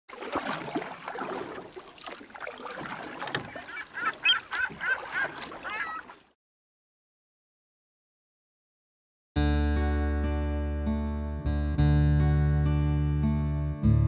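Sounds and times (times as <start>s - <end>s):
birds calling: 3.4s - 6.2s.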